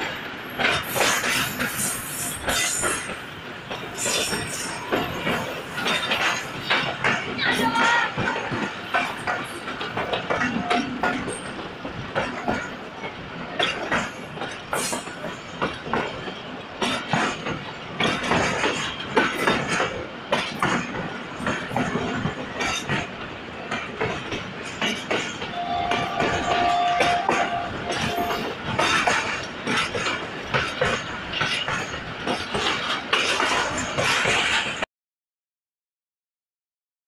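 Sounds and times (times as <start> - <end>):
train wheels clattering over rails: 0.0 - 34.9
train horn: 25.5 - 28.5.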